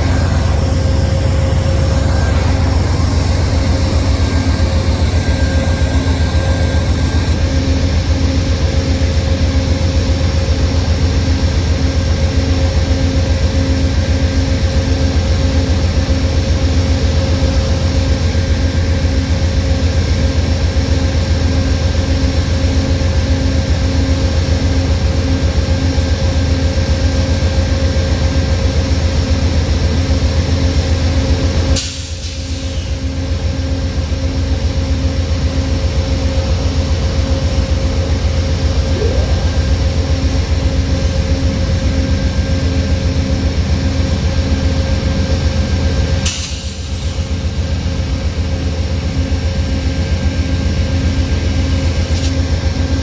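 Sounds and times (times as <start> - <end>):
steady tones: 0.0 - 8.7, 38.6 - 41.7
train rumbling past: 0.0 - 31.8, 32.6 - 46.3.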